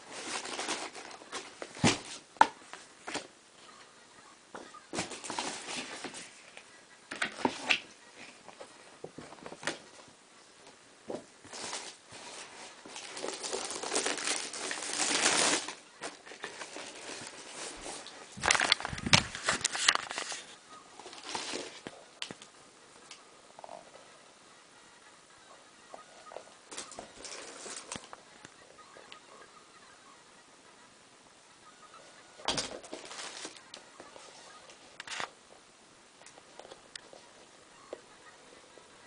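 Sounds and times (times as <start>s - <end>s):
paper rustling and crinkling: 0.0s - 3.3s, 4.9s - 6.6s, 11.1s - 22.4s, 26.7s - 28.2s, 32.5s - 34.4s.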